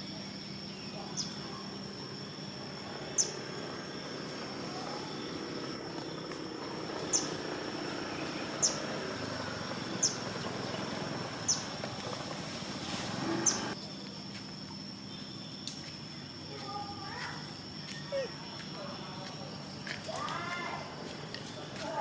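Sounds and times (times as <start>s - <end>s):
bird chirping: 3.0s - 3.5s, 4.8s - 12.3s, 13.2s - 13.8s.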